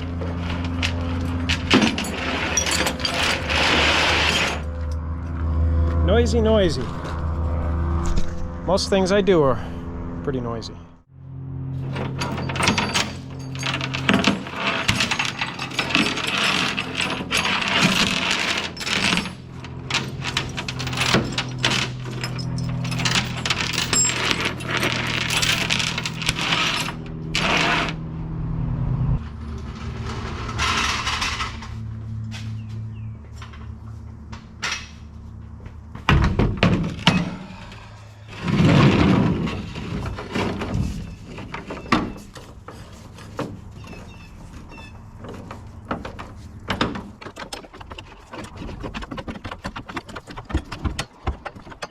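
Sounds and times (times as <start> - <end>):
steady engine hum: 0.0 - 3.6, 4.5 - 48.9
metal clanking and rattling: 0.2 - 4.7, 11.8 - 27.9, 36.0 - 51.9.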